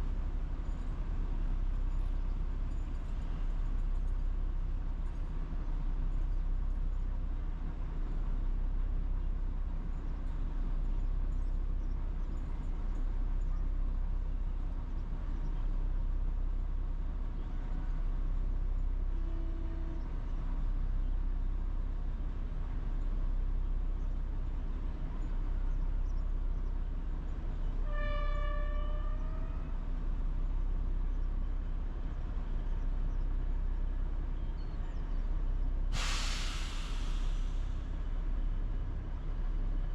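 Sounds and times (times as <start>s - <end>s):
steady low rumble: 0.0s - 39.9s
train horn: 19.2s - 20.2s, 27.8s - 29.9s.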